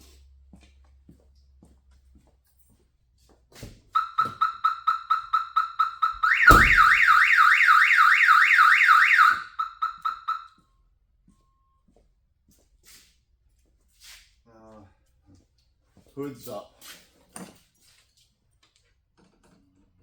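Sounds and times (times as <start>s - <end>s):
car alarm siren: 4.0s - 10.5s
thump: 6.4s - 7.0s.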